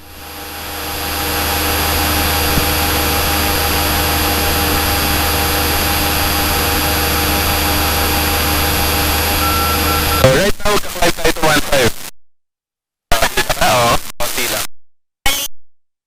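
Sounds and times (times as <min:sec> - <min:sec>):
airplane engine and propeller drone: 0:00.0 - 0:10.4.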